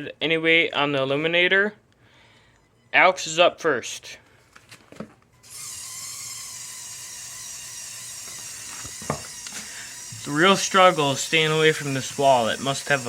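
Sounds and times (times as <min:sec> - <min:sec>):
toy electric motor whirring: 0:05.4 - 0:13.0.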